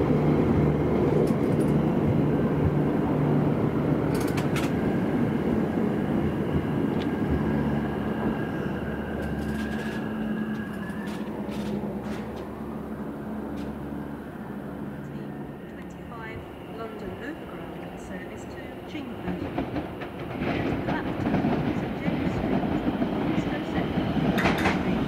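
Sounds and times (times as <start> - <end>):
train wheels rumbling on rails: 0.0 - 25.0
sharp clicks: 4.1 - 4.8.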